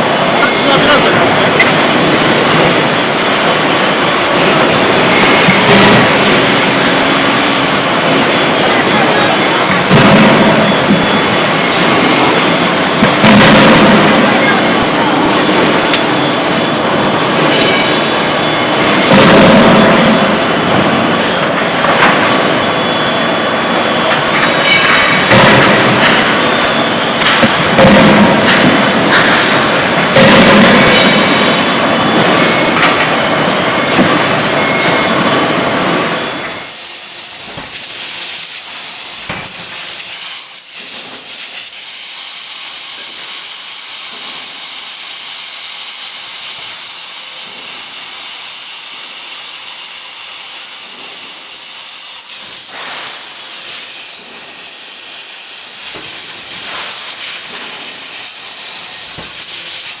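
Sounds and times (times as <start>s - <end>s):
loud rushing noise: 0.0s - 41.7s.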